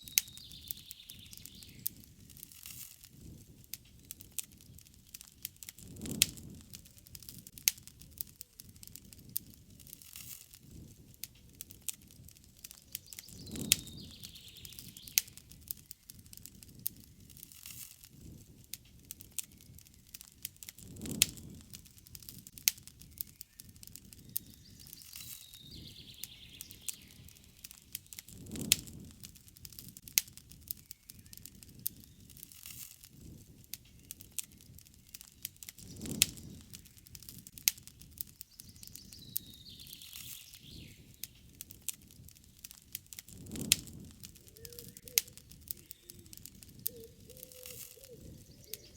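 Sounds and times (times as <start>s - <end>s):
faint birds calling: 0.0s - 2.0s, 12.8s - 16.2s, 23.0s - 28.4s, 38.4s - 41.6s, 44.2s - 48.9s
campfire crackling and popping: 0.0s - 48.9s.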